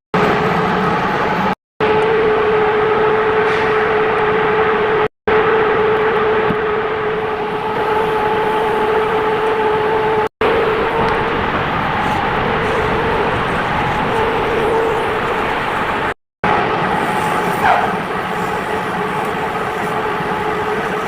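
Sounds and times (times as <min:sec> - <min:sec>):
constant hum: 0:00.2 - 0:21.0
gas torch hissing roar: 0:05.8 - 0:21.0.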